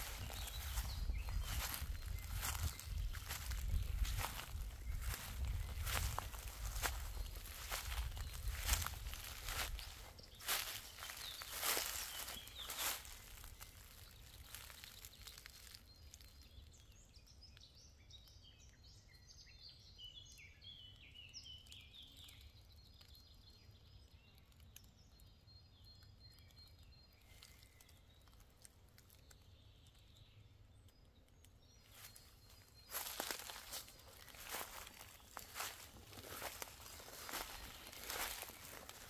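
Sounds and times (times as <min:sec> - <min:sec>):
footsteps on forest floor: 0:00.0 - 0:15.8, 0:31.9 - 0:39.0
songbird chirping: 0:00.0 - 0:39.0.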